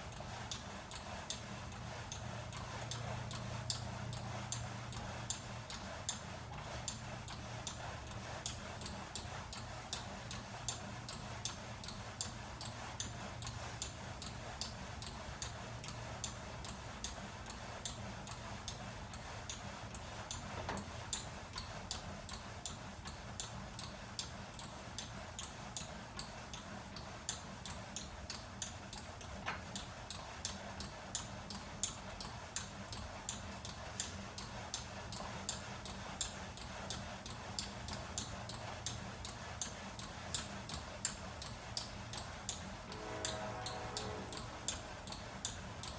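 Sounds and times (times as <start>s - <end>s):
low steady hum: 41.2s - 45.9s.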